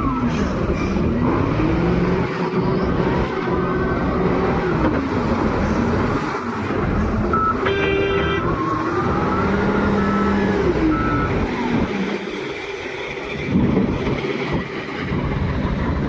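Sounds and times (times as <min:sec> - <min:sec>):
wheel loader diesel engine revving: 0:00.0 - 0:16.0
reversing alarm beeping: 0:07.3 - 0:11.9.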